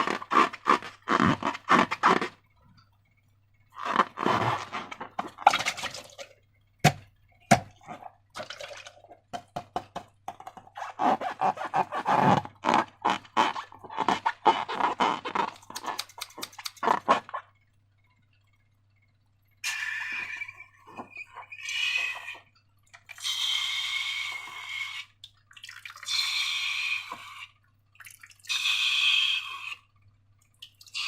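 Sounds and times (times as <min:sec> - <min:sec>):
slime squelching and crackling: 0:11.6 - 0:17.4
sharp snaps: 0:15.6 - 0:16.8.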